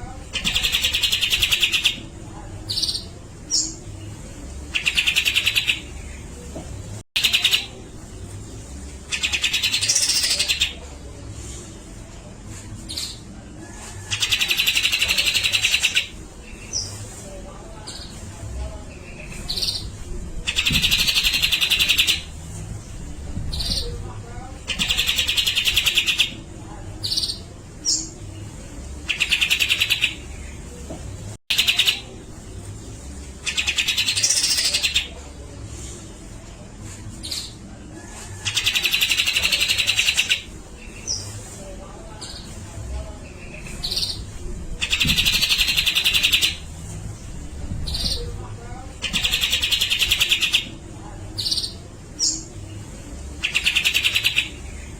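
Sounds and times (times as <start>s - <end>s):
bird chattering rattles: 0.4s - 2.0s, 49.0s - 50.7s, 53.4s - 54.6s.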